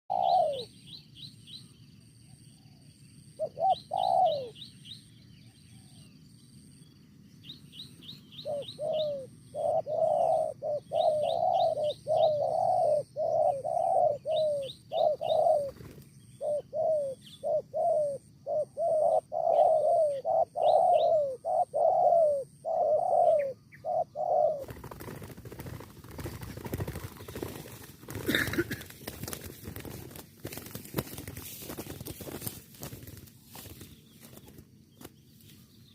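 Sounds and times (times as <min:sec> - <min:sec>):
dove cooing: 0:00.1 - 0:00.8, 0:02.6 - 0:04.6, 0:08.3 - 0:34.6
small bird chirping: 0:00.1 - 0:35.9
rustling: 0:24.9 - 0:35.8.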